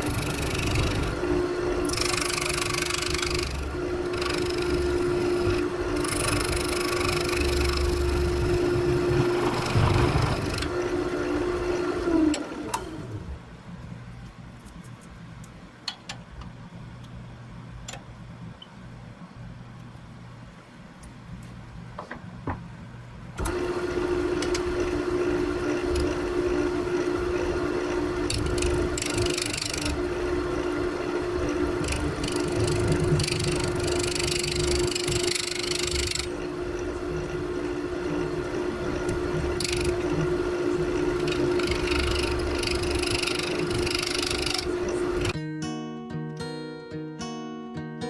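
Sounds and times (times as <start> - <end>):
low hum: 0.0 - 12.2
wood lathe running: 0.0 - 13.3, 23.4 - 45.4
acoustic guitar music: 44.6 - 48.0.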